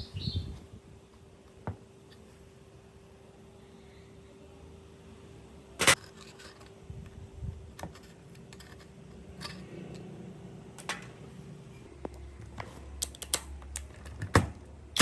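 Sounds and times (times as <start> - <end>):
faint steady hum: 0.0 - 15.0
metal parts clicking and knocking: 5.8 - 6.8, 7.7 - 10.2, 10.8 - 11.2, 13.0 - 15.0.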